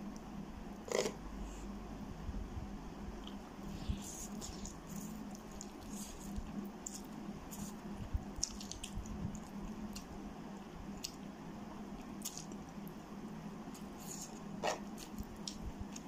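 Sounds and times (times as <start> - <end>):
wet chewing: 4.0 - 10.1, 12.0 - 12.9.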